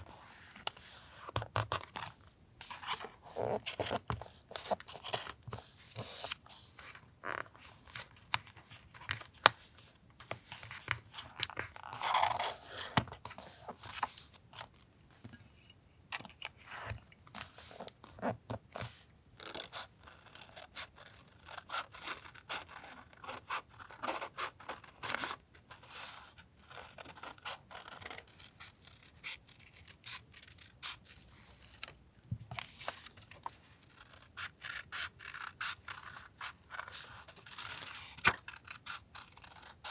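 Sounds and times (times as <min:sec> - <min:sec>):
paper rustling and scraping: 0:00.0 - 0:14.4
scissors snipping paper: 0:33.9 - 0:39.9.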